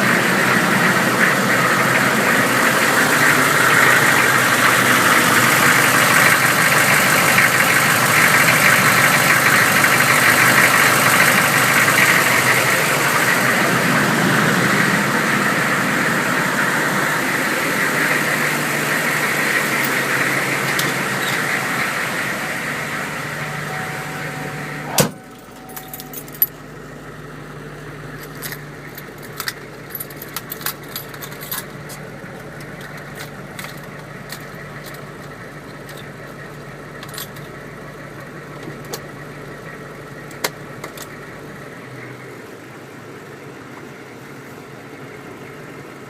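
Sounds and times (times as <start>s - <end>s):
diesel engine idling: 0.0s - 46.0s
light clicks and rattles: 28.2s - 36.4s.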